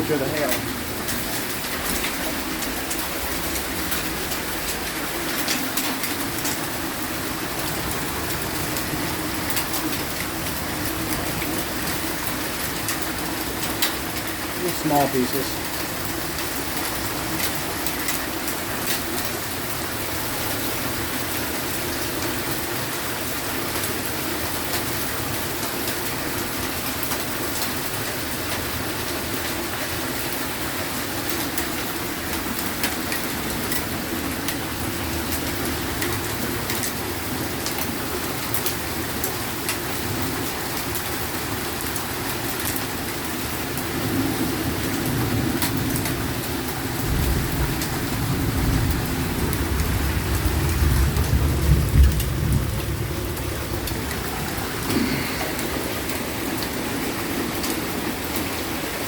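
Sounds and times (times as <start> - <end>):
heavy rain pouring: 0.0 - 59.0
low rumble of thunder: 44.0 - 57.2.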